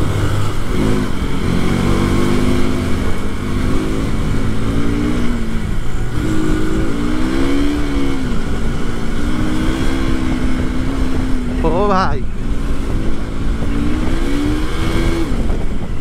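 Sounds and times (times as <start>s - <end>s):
motorcycle engine revving: 0.0s - 16.0s
wind rushing over microphone: 0.0s - 16.0s.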